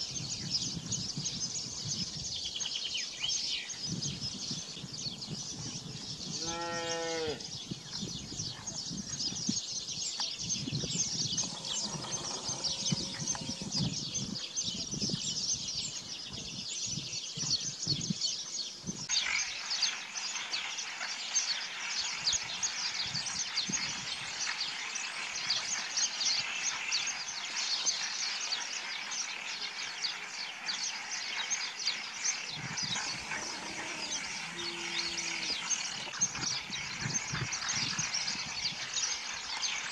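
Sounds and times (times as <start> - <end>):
small birds chirping: 0.0 - 39.9
sheep bleating: 33.2 - 35.7.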